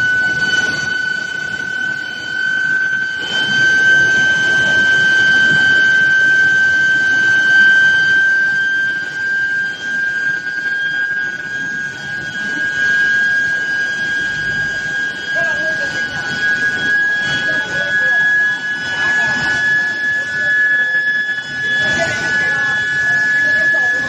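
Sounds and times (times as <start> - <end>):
high-pitched furnace coil whine: 0.0 - 24.0.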